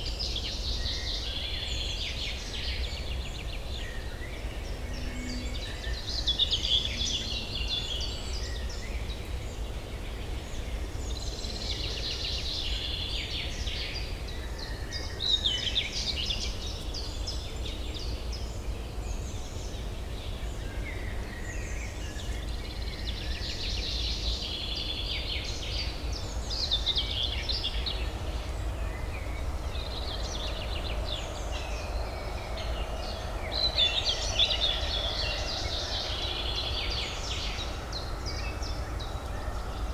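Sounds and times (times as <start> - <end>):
distant city traffic hum: 15.6 - 39.9.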